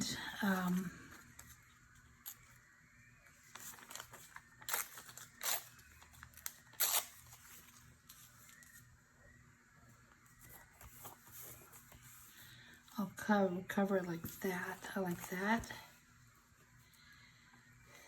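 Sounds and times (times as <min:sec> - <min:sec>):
paper rustling and crackling: 0:03.4 - 0:08.9.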